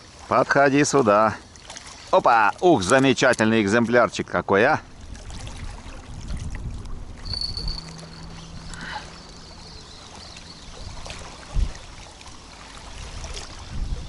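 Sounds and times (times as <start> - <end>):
wind buffeting microphone: 4.9 - 14.0.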